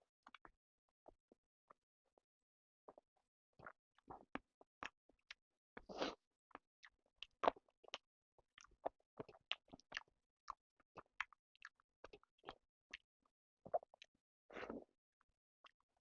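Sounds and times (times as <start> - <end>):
chewing and biting food: 3.6 - 14.9.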